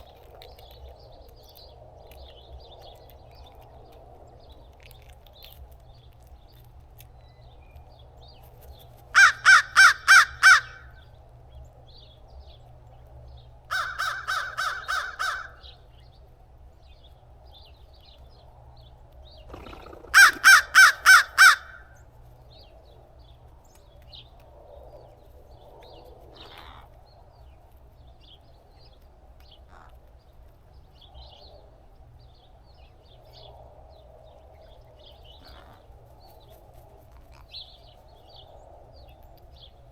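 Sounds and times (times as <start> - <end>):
crow cawing: 9.1 - 11.0, 13.7 - 15.6, 20.1 - 22.0.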